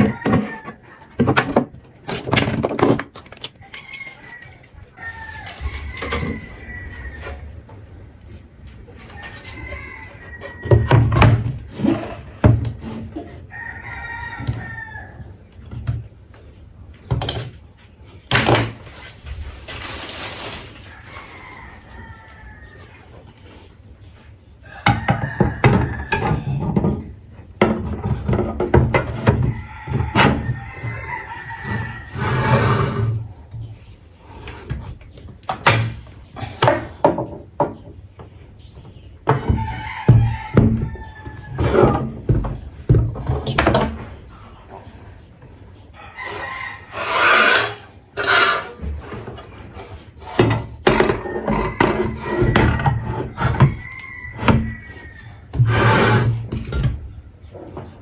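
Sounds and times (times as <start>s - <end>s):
rooster crowing: 0.0s - 1.1s, 3.6s - 7.6s, 9.0s - 11.3s, 13.4s - 15.3s, 20.8s - 23.1s, 29.3s - 33.1s, 45.9s - 48.7s, 50.9s - 56.3s
wood knocking and scraping: 0.0s - 7.8s, 46.4s - 54.9s.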